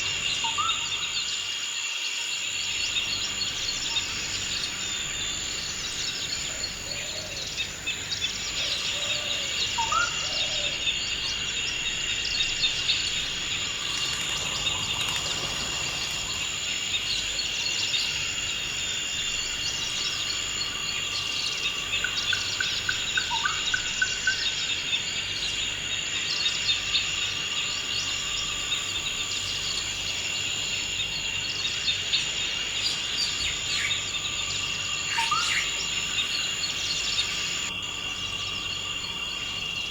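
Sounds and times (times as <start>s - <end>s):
high insect drone: 0.0s - 39.9s
birds chirping: 2.8s - 18.6s.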